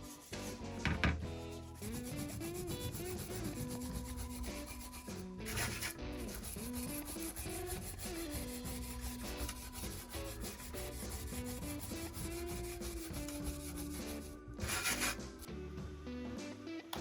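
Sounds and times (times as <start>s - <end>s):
sanding metal: 0.0s - 0.6s, 1.4s - 15.5s.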